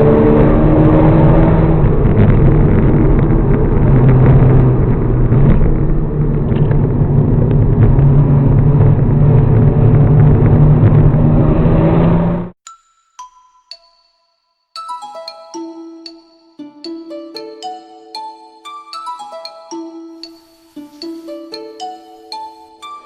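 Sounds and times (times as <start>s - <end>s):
car engine droning: 0.0s - 12.6s.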